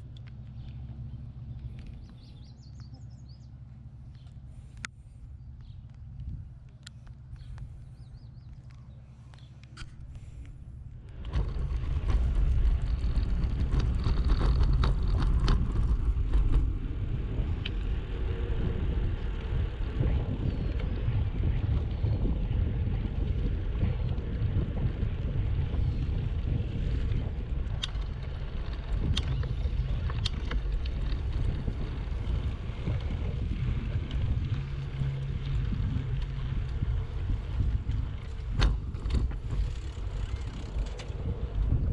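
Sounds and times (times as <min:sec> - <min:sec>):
wind rushing over microphone: 0:09.8 - 0:41.9
scattered clicks: 0:27.0 - 0:33.2.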